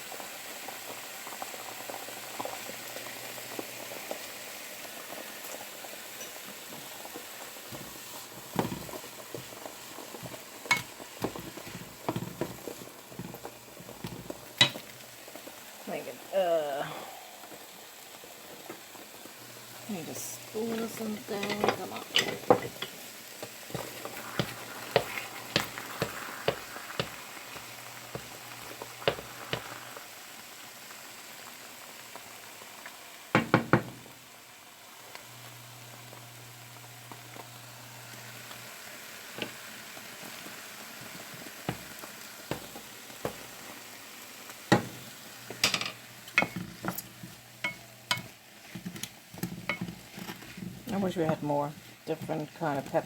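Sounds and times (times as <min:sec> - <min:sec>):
food sizzling in a frying pan: 0:00.0 - 0:53.0
spoon knocking and scraping pan: 0:07.7 - 0:15.0, 0:20.6 - 0:30.0, 0:33.4 - 0:34.1, 0:41.6 - 0:43.8, 0:44.7 - 0:53.0.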